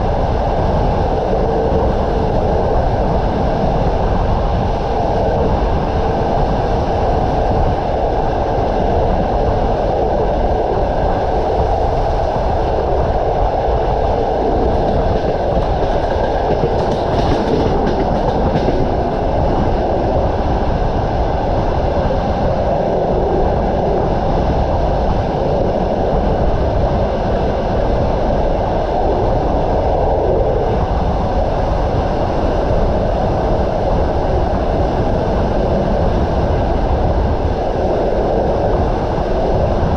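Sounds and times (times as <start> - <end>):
train wheels on rails: 11.2 - 21.7.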